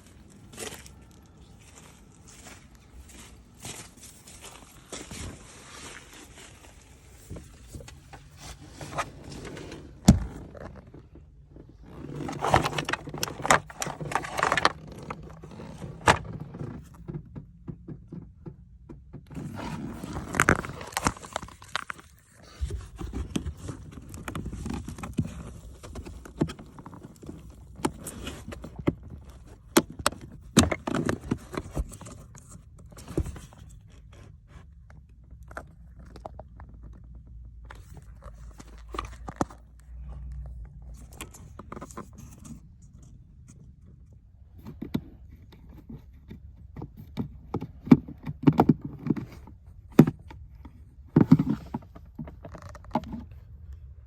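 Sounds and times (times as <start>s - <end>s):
knocks and clicks of plastic: 12.0s - 19.6s.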